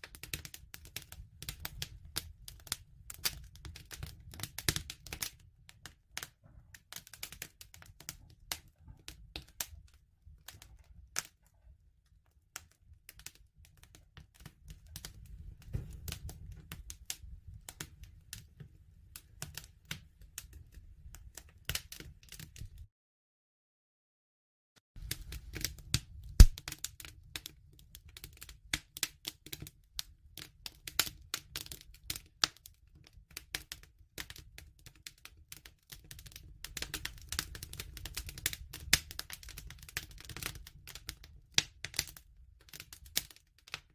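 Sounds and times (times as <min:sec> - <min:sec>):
wood fire crackling: 0:00.0 - 0:22.9, 0:25.0 - 0:43.9.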